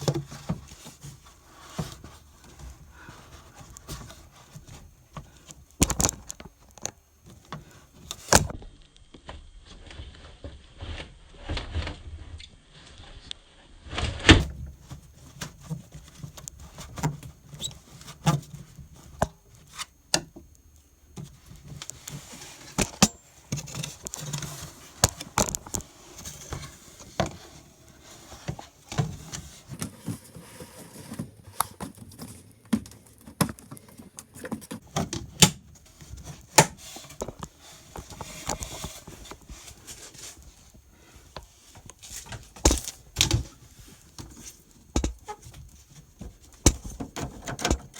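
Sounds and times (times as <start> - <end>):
hands handling parts and tools: 14.8 - 47.9.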